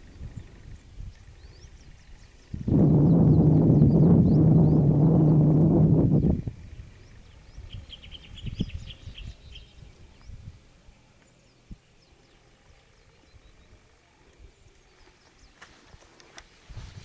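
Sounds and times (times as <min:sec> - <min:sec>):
small bird chirping: 0:06.1 - 0:10.5.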